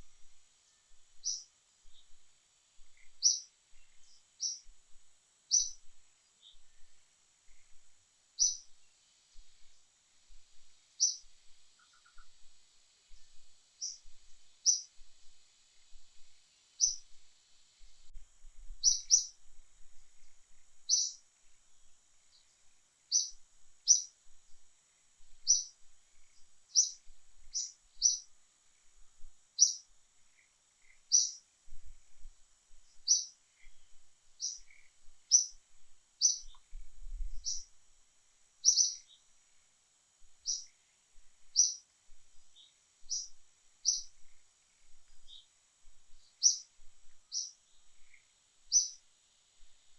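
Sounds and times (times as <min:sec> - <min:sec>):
bird chirping: 0:00.0 - 0:02.2, 0:02.8 - 0:04.7, 0:05.5 - 0:09.7, 0:10.3 - 0:17.2, 0:18.8 - 0:19.4, 0:20.5 - 0:21.2, 0:22.3 - 0:24.2, 0:25.4 - 0:28.3, 0:29.6 - 0:31.4, 0:32.9 - 0:35.6, 0:36.2 - 0:37.8, 0:38.6 - 0:39.3, 0:40.4 - 0:40.8, 0:41.5 - 0:41.8, 0:42.5 - 0:49.0
faint high-pitched hiss: 0:00.0 - 0:49.9.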